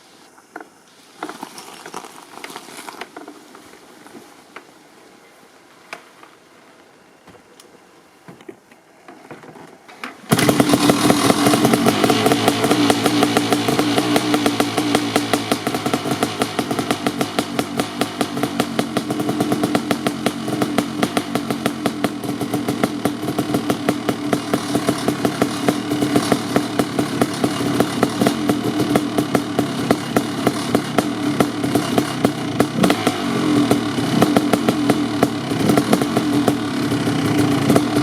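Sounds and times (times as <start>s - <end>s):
two-stroke motorcycle idling: 10.3s - 38.0s.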